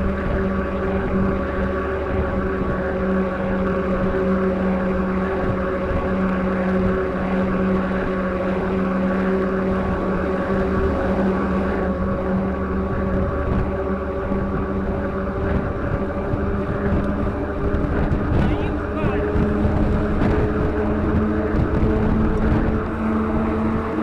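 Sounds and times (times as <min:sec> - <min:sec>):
road noise: 0:00.0 - 0:24.0
steady tones: 0:00.0 - 0:24.0
truck engine drone: 0:00.0 - 0:24.0
wind rushing: 0:09.7 - 0:24.0.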